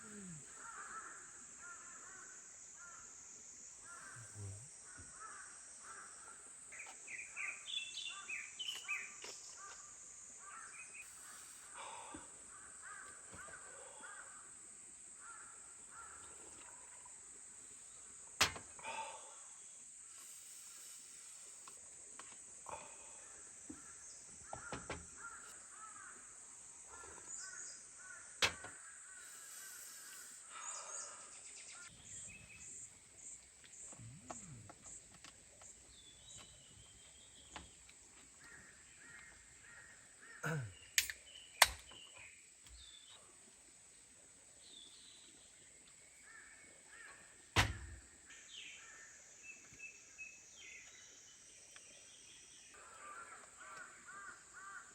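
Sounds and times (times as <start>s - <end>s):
steady high-pitched hiss: 0.0s - 54.9s
birds calling: 3.8s - 14.5s, 22.7s - 43.3s
sharp knocks: 47.6s - 48.0s.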